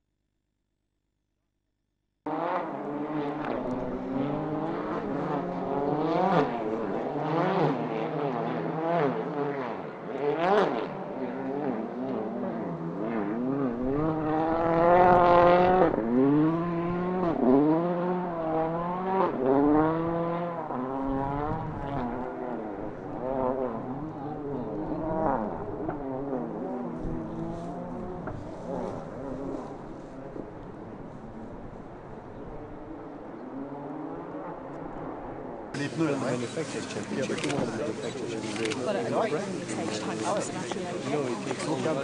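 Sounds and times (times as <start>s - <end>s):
rally car engines revving: 2.3s - 42.0s.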